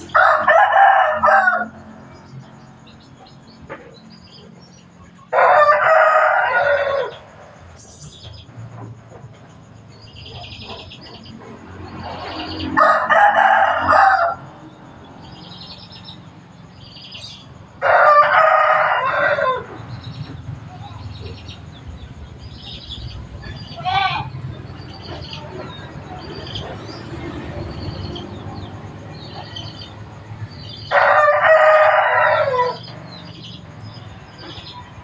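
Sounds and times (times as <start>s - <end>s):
rooster crowing: 0.0s - 2.0s, 5.3s - 7.3s, 12.3s - 14.7s, 17.8s - 20.0s, 30.6s - 34.6s
small birds chirping: 1.7s - 5.4s, 6.6s - 12.8s, 14.5s - 18.1s, 19.2s - 35.0s.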